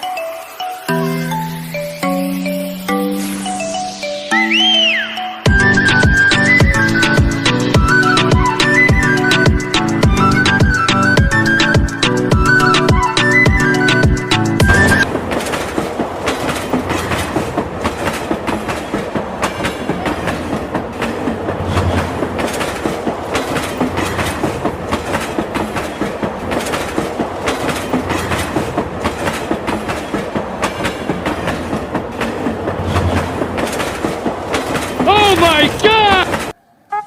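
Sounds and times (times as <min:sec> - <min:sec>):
train wheels clattering on rails: 0:14.0 - 0:36.6.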